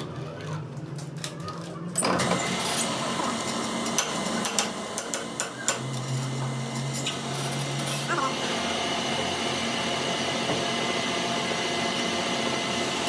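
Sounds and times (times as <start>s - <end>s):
metal tools clinking: 2.0s - 3.1s.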